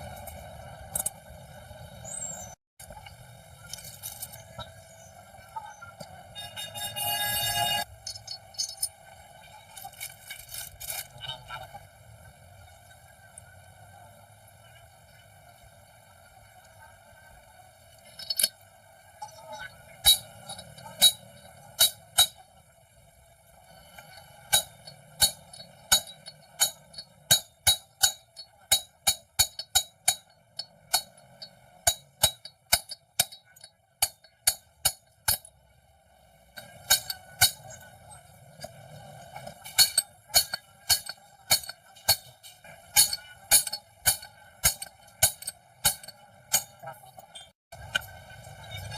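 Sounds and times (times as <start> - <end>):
hammer striking metal: 20.0 - 22.4, 24.5 - 35.5, 36.6 - 37.8, 39.4 - 46.8.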